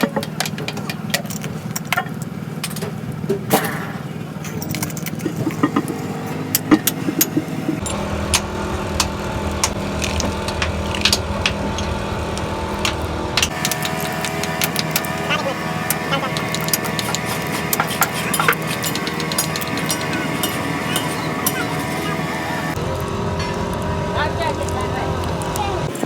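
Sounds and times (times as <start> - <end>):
steady engine hum: 0.0 - 26.0
metal clinks and taps: 13.4 - 22.1.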